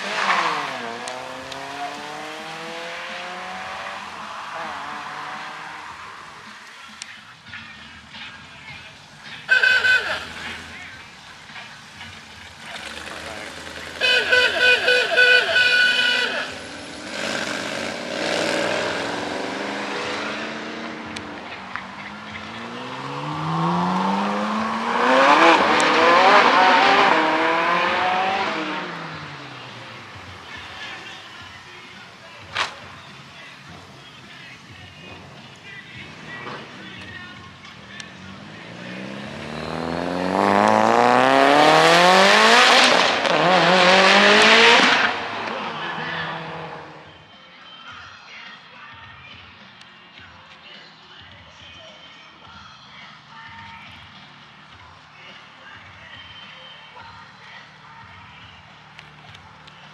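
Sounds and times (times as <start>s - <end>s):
car engines accelerating: 0.0s - 47.3s.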